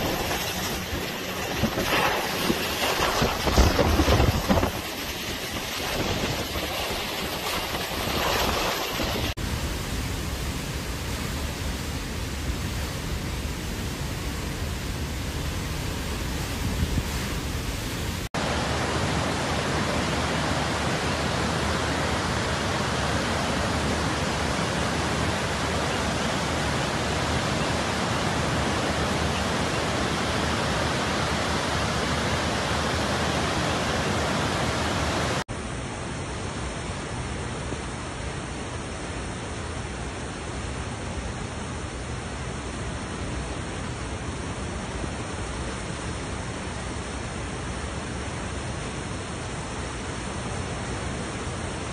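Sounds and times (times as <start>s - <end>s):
hurricane wind blowing: 0.0s - 51.9s.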